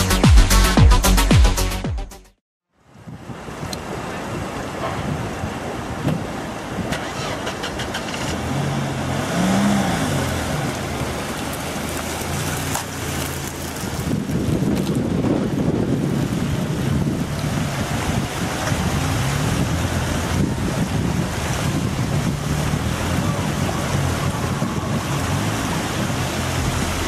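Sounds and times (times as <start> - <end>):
rushing water and wind: 2.7 - 27.0
vehicle engine revving: 6.8 - 14.3, 16.2 - 27.0.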